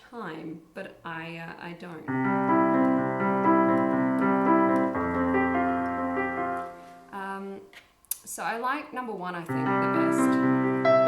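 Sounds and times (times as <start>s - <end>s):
synthesizer piano chords: 2.1s - 7.2s, 9.5s - 11.0s.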